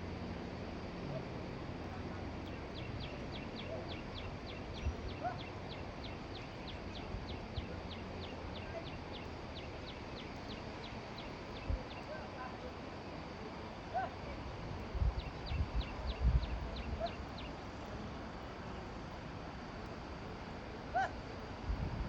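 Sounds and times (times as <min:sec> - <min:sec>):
outdoor background noise: 0:00.0 - 0:22.0.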